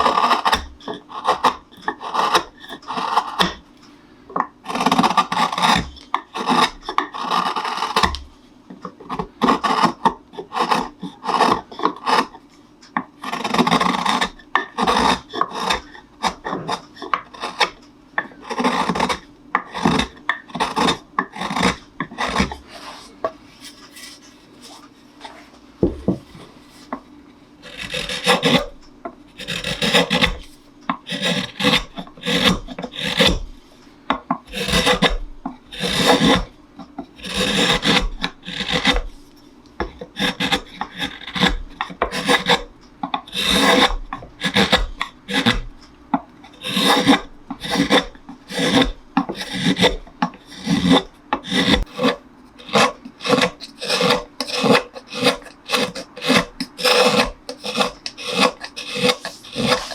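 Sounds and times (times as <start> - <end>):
hand tool rasping on wood: 0.0 - 3.6, 4.6 - 8.2, 9.1 - 12.4, 13.2 - 22.9, 27.6 - 33.5, 34.5 - 36.6, 37.2 - 39.2, 39.8 - 45.8, 46.5 - 59.9
knock on wood: 25.8 - 26.2.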